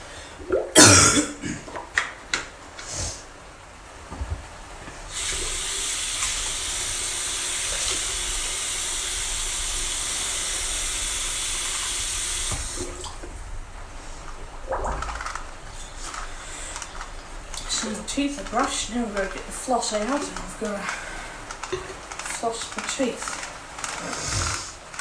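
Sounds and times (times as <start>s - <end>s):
tap running into sink: 5.1s - 13.3s.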